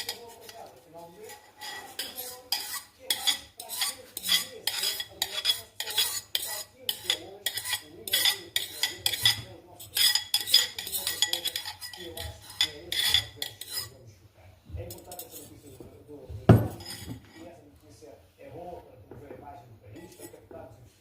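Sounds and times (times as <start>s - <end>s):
metal spoon stirring in a pot: 0.0s - 14.0s, 14.8s - 15.9s, 16.6s - 17.6s, 19.9s - 20.5s.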